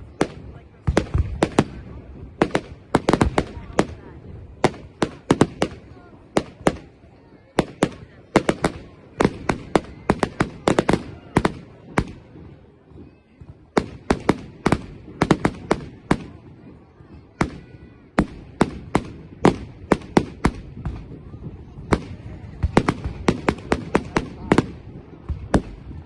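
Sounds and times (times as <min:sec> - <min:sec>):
fireworks banging: 0:00.0 - 0:26.0.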